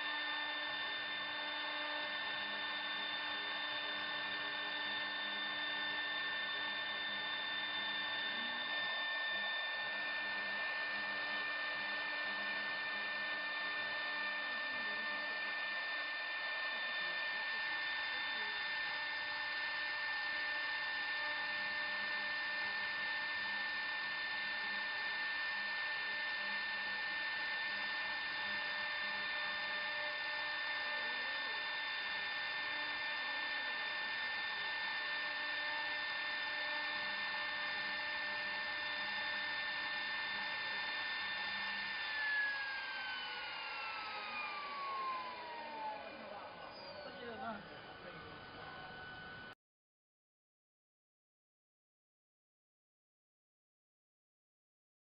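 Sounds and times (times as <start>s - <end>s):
router spindle whining: 0.0s - 49.6s.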